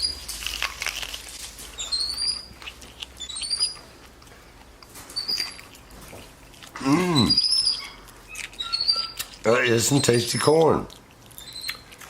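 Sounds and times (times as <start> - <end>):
monkeys squeaking: 1.7 - 4.0, 5.1 - 5.9, 6.8 - 10.6, 11.4 - 12.0.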